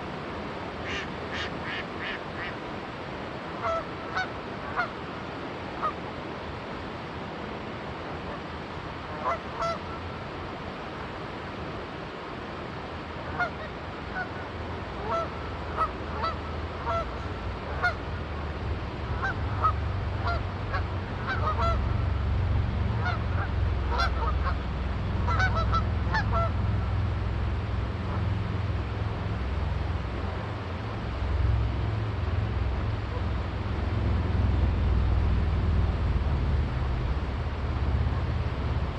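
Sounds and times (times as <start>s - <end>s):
river water rushing: 0.0s - 38.9s
geese honking: 3.6s - 4.9s, 9.2s - 9.8s, 15.0s - 18.0s, 19.1s - 22.1s, 22.9s - 26.7s
low engine drone: 15.1s - 38.9s.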